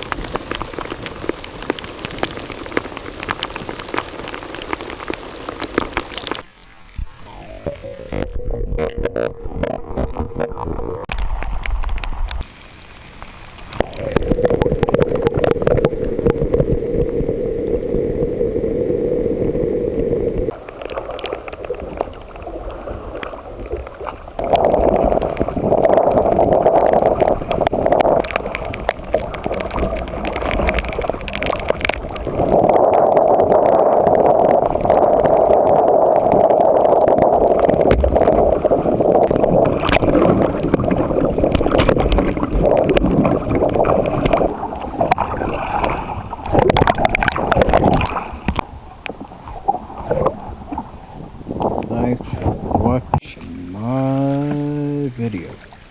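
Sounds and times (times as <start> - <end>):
wind noise on microphone: 5.7 - 12.5, 21.8 - 53.2
water sloshing around a kayak hull: 19.2 - 53.7.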